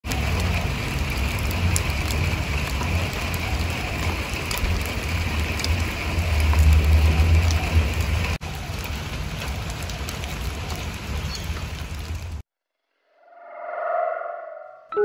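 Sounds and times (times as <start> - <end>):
steady rain falling: 0.0 - 12.4
low rumble: 13.0 - 15.0.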